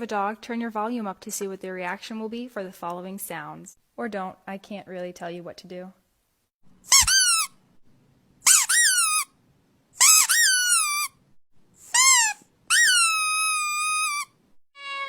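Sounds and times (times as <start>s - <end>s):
high-pitched sliding squeaks: 6.9s - 7.5s, 8.5s - 9.3s, 10.0s - 11.2s, 11.8s - 15.0s.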